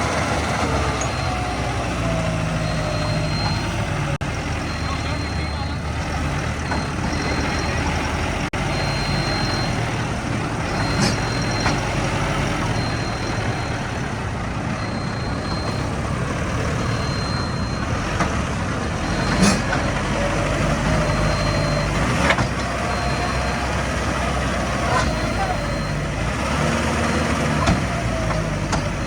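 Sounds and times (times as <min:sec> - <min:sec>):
tractor diesel engine running: 0:00.0 - 0:29.0
high beeping: 0:00.8 - 0:18.2, 0:22.8 - 0:26.2.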